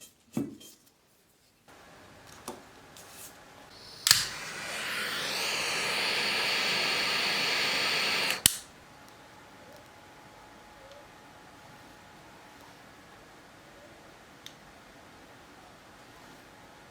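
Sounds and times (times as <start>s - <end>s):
aerosol spraying hiss: 3.7s - 8.6s
spray can nozzle click: 3.8s - 8.6s.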